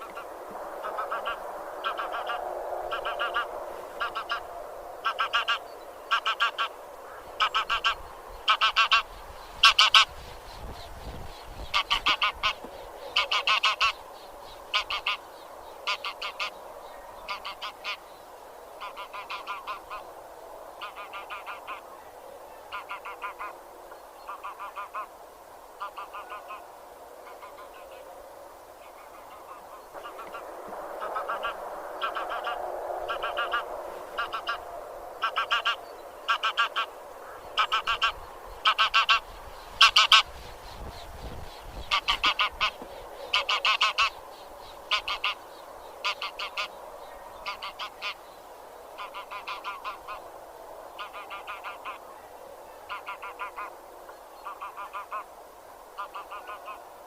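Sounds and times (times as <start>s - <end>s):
geese honking: 0.0s - 10.1s, 11.7s - 14.0s, 14.7s - 16.6s, 17.2s - 18.0s, 18.8s - 20.0s, 20.8s - 21.8s, 24.3s - 25.1s, 25.8s - 26.7s, 31.0s - 40.3s, 41.8s - 44.2s, 44.9s - 45.4s, 46.0s - 46.8s, 47.4s - 48.2s, 49.0s - 50.2s, 51.0s - 52.0s, 52.9s - 53.7s, 54.4s - 55.3s, 56.0s - 56.8s
flock of geese chattering: 0.0s - 10.8s, 11.5s - 14.0s, 14.7s - 18.0s, 18.8s - 20.1s, 20.8s - 23.6s, 24.2s - 25.1s, 25.8s - 28.1s, 28.8s - 30.4s, 31.0s - 48.2s, 49.0s - 50.3s, 50.9s - 53.8s, 54.4s - 55.3s, 56.0s - 56.9s.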